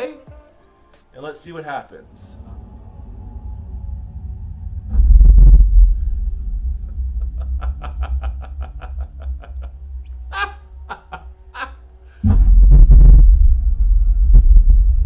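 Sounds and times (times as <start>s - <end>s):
film soundtrack: 0.0s - 15.0s
deep bass rumble: 2.2s - 11.6s, 12.2s - 15.0s
heavy bass boom: 2.4s - 10.3s, 12.2s - 15.0s.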